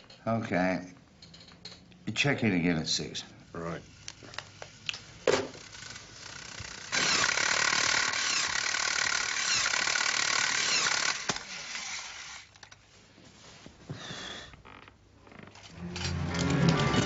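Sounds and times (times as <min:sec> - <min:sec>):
mechanical ratcheting rattle: 0:05.6 - 0:12.4.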